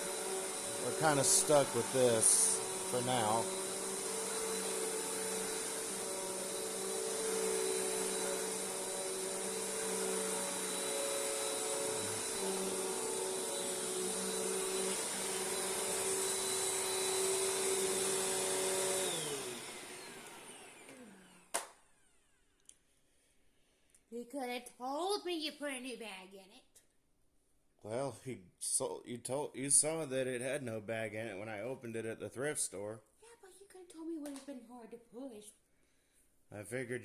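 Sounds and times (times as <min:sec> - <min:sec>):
vacuum cleaner running: 0:00.0 - 0:22.4.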